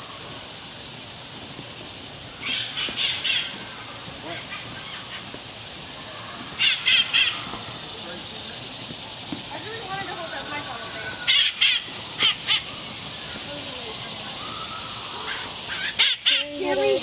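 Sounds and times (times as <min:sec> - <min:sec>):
steady high hiss: 0:00.0 - 0:17.0
bird squawking: 0:02.4 - 0:05.3, 0:06.0 - 0:07.9, 0:09.8 - 0:17.0.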